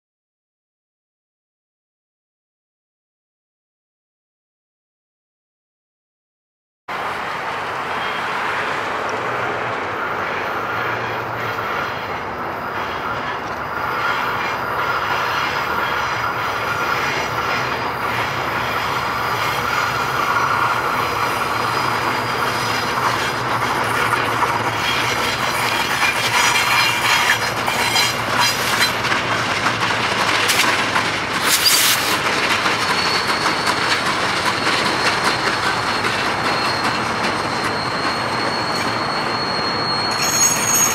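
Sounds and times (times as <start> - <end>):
train running on rails: 6.9 - 40.9
high wheel squeal: 7.1 - 40.9
wheels clicking over rail joints: 22.3 - 37.7.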